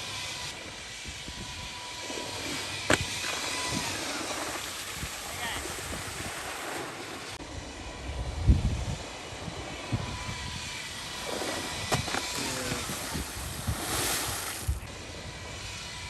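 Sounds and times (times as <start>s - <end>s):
faint high whine: 1.5s - 16.0s
wind buffeting microphone: 7.6s - 14.9s.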